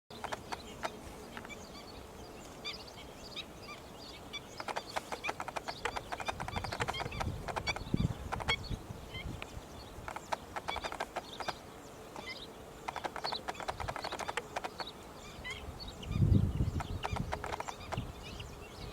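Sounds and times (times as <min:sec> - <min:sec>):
sharp clicks: 0:00.1 - 0:01.5, 0:04.6 - 0:08.6, 0:10.0 - 0:11.6, 0:12.2 - 0:14.9, 0:16.8 - 0:18.1
birds chirping: 0:00.1 - 0:18.9.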